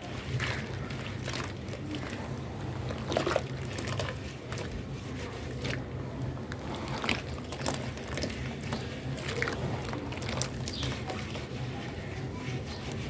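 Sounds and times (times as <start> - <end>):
wet cement squishing and crackling: 0.0 - 13.0.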